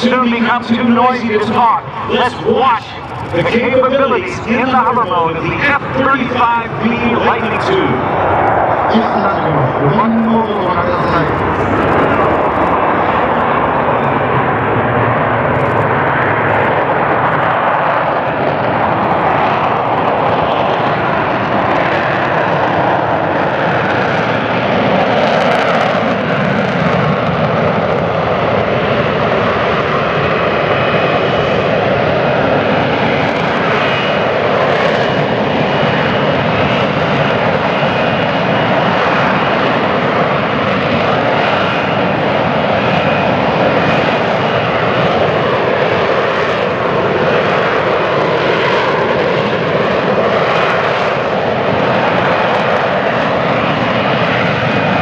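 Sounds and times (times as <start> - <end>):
jet aircraft hovering: 0.0 - 55.0
high whining tones: 0.6 - 14.7.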